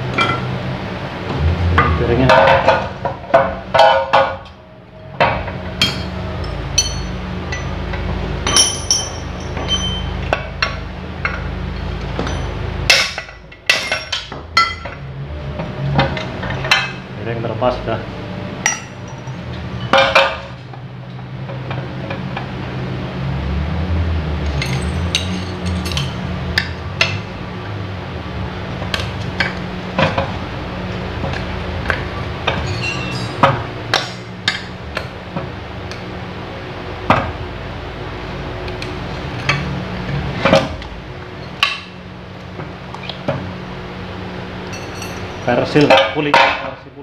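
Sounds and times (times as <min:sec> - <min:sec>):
low hum: 0:00.0 - 0:45.4
metal parts clinking: 0:05.8 - 0:07.8, 0:08.4 - 0:15.0, 0:24.5 - 0:27.2, 0:32.5 - 0:34.8, 0:44.6 - 0:46.0.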